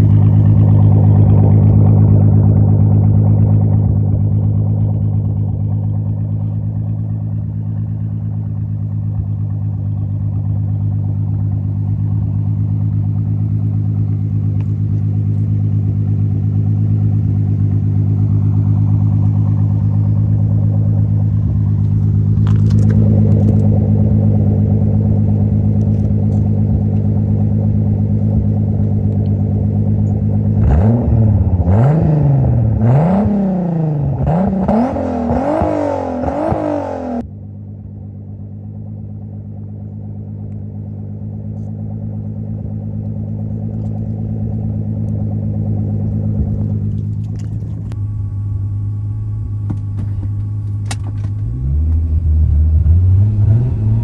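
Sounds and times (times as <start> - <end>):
car engine idling: 0.0 - 54.0
engine revving in short blips: 28.3 - 37.2, 49.2 - 54.0.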